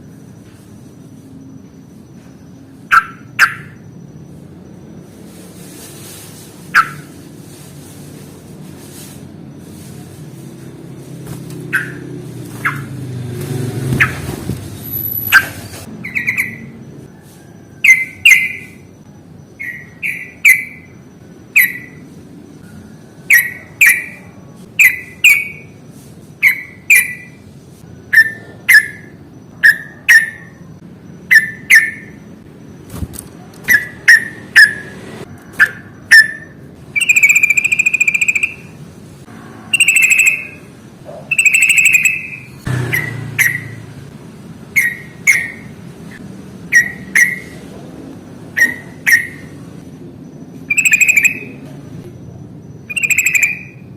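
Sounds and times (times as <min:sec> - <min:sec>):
bird chirping: 0:00.8 - 0:04.8, 0:11.6 - 0:13.0, 0:13.9 - 0:17.0, 0:17.8 - 0:25.8, 0:26.4 - 0:32.9, 0:35.6 - 0:38.8, 0:39.7 - 0:43.8, 0:44.7 - 0:47.6, 0:48.6 - 0:49.7, 0:50.5 - 0:51.7, 0:52.8 - 0:53.9
drawn-out bird notes: 0:36.9 - 0:43.8, 0:50.4 - 0:51.6, 0:52.8 - 0:53.9.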